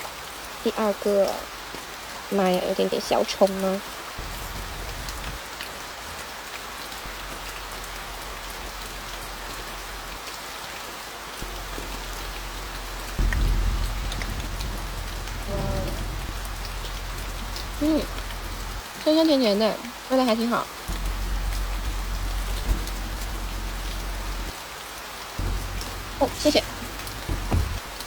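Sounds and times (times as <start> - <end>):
heavy rain on a car: 0.0 - 28.0
drops ticking: 4.2 - 5.4, 11.4 - 24.6, 25.4 - 28.0
low rumble: 4.2 - 5.4, 11.4 - 19.2, 20.9 - 24.6, 25.4 - 28.0.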